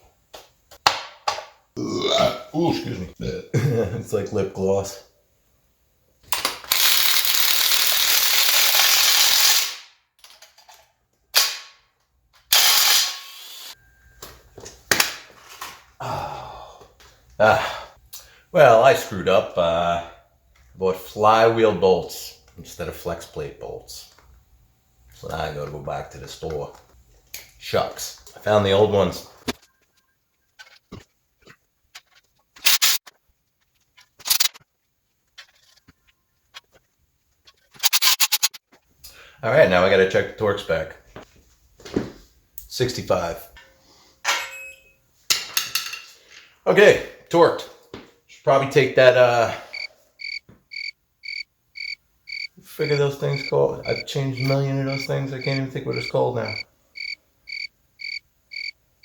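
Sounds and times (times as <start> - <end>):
ratchet clicking: 6.6 - 9.8, 12.5 - 13.5, 34.3 - 34.6, 37.8 - 38.6
impact wrench bursts: 6.6 - 9.9, 12.5 - 13.8, 32.6 - 33.0, 37.8 - 38.6.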